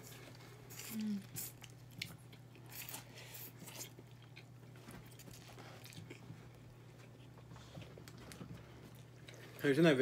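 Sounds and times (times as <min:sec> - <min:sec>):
chewing and biting food: 0:00.0 - 0:09.6
faint steady hum: 0:00.0 - 0:10.0.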